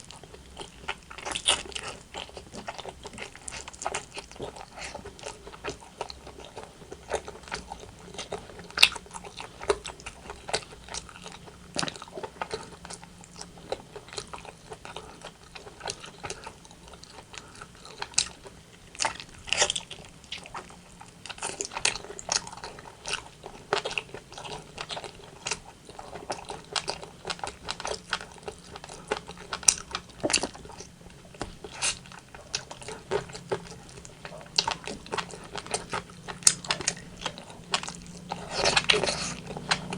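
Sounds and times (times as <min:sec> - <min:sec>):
crisp skin crunching: 0:00.0 - 0:39.9
wet chewing and biting: 0:00.0 - 0:39.9.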